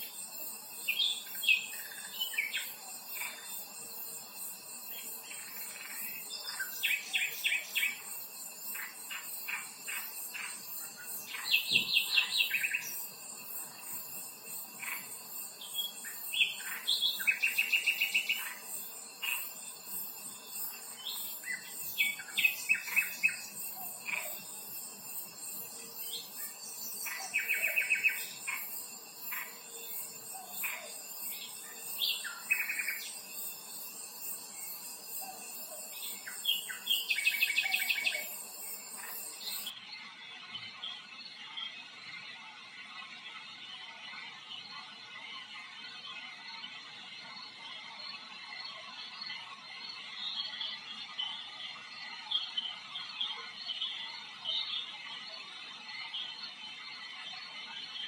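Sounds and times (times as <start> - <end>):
birds chirping: 0.0 - 39.8
steady high hiss: 0.0 - 39.8
faint pulsing insect buzz: 0.0 - 58.0.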